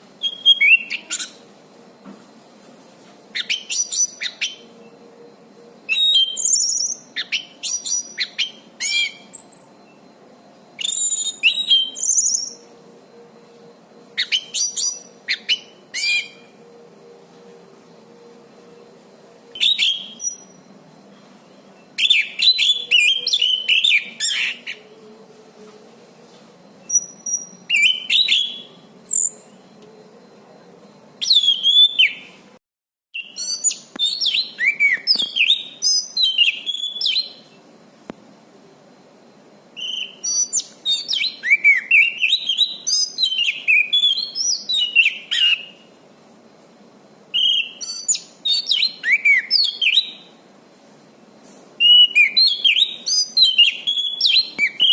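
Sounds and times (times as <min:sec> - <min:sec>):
thrush singing whistled phrases: 0:00.2 - 0:01.4, 0:05.9 - 0:10.0, 0:10.8 - 0:12.7, 0:14.2 - 0:16.5, 0:19.6 - 0:21.2, 0:21.9 - 0:24.8, 0:26.9 - 0:29.7, 0:31.2 - 0:32.4, 0:33.2 - 0:37.4, 0:39.8 - 0:45.9, 0:47.4 - 0:50.3, 0:51.8 - 0:54.9.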